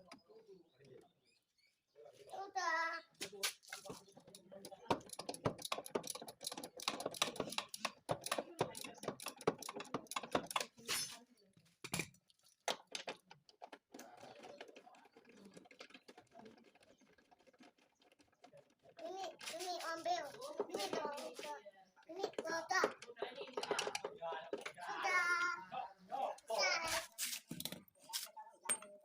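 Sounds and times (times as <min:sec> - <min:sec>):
hand tools clattering against metal: 0:03.8 - 0:11.2, 0:22.2 - 0:25.4.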